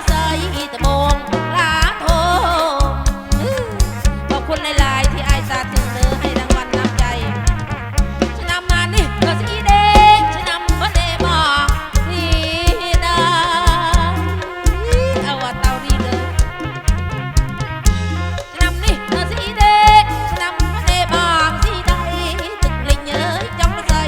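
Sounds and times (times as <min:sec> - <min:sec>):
heavy bass: 0:00.0 - 0:24.0
steady drum beat: 0:00.0 - 0:24.0
wavering melody with vibrato: 0:18.0 - 0:24.0.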